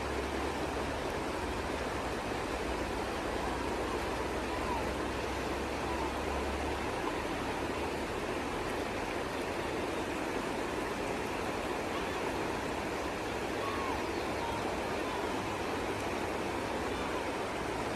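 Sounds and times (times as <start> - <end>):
river water rushing: 0.0 - 17.9.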